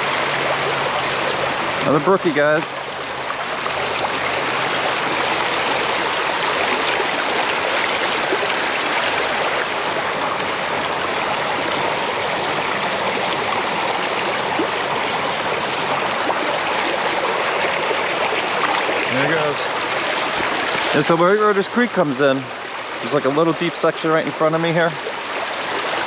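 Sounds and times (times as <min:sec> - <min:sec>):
water rushing over rocks: 0:00.0 - 0:26.0.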